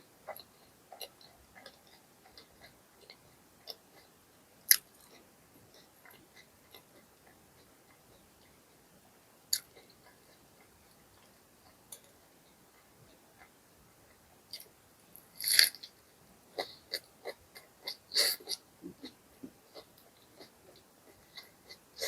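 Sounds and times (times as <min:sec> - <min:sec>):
chewing: 0:00.2 - 0:08.9, 0:09.5 - 0:22.0
crunchy bite: 0:15.4 - 0:15.9
mouth clicks: 0:15.4 - 0:16.0.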